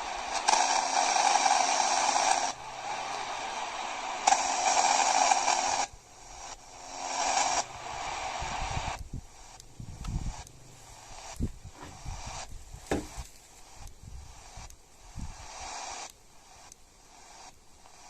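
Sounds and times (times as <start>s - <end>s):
radio static hiss: 0.0s - 18.0s
dull knocks: 12.9s - 13.3s.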